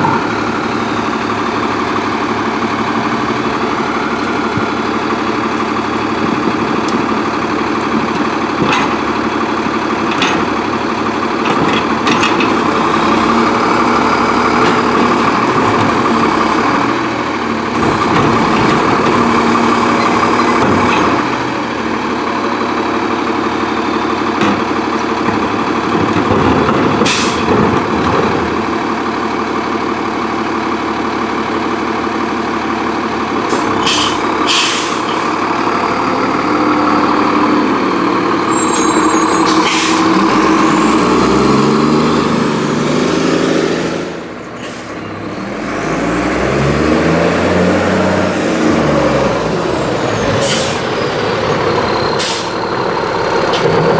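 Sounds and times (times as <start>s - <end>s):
garbage truck engine running: 0.0s - 53.9s
air brakes hissing: 27.1s - 27.5s, 33.5s - 35.3s, 38.5s - 41.2s, 44.5s - 45.1s, 50.1s - 51.0s, 51.6s - 52.9s.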